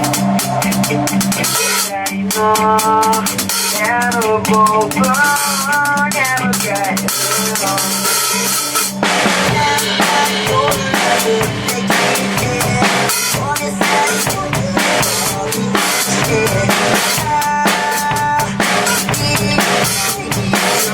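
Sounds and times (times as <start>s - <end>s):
cymbals: 0.0s - 2.1s, 7.2s - 20.9s
drum kit playing rock beat: 0.0s - 20.9s
sliding melodic lead line: 0.0s - 20.9s.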